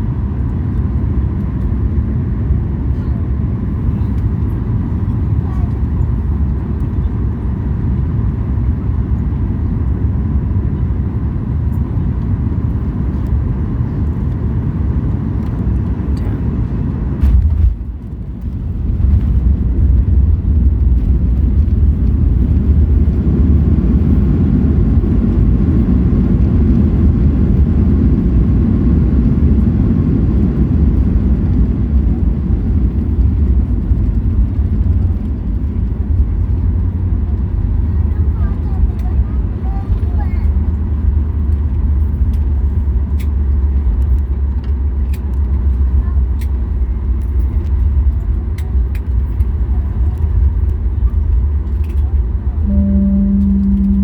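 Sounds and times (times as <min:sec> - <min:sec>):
airplane cabin rumble: 0:00.0 - 0:54.0.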